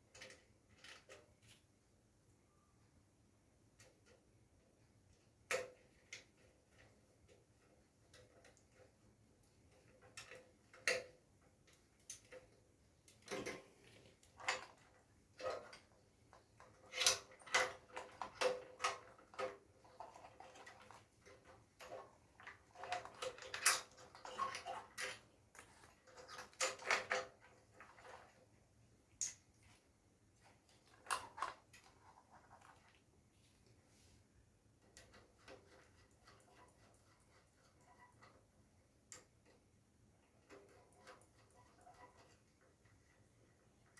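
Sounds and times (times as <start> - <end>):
tools and parts clinking: 22.8 - 27.4.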